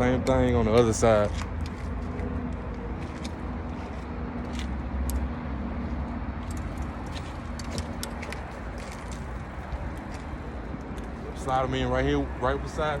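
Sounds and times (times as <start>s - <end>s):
fishing rods clicking and rattling: 0.0s - 12.2s
steady low rumble: 0.0s - 13.0s.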